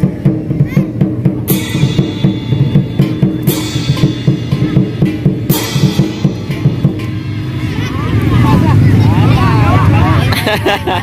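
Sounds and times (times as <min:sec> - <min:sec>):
fast drum beat: 0:00.0 - 0:09.1
cymbal crash: 0:00.4 - 0:09.6.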